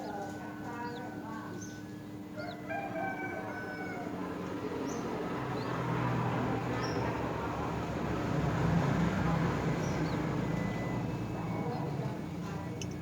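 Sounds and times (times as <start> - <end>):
small birds chirping: 0.0 - 2.7, 4.5 - 7.5, 9.0 - 13.0
rooster crowing: 2.4 - 4.3.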